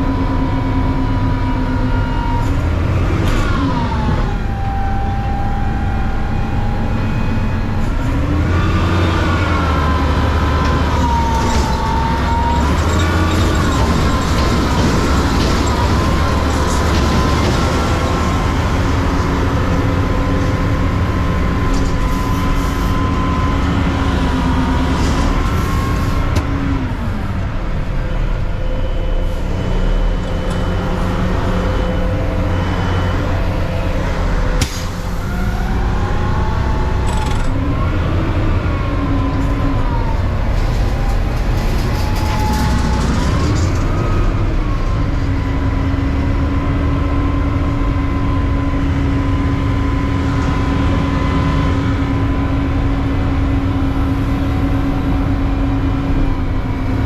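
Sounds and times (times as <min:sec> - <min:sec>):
truck engine revving under load: 0:05.7 - 0:57.0.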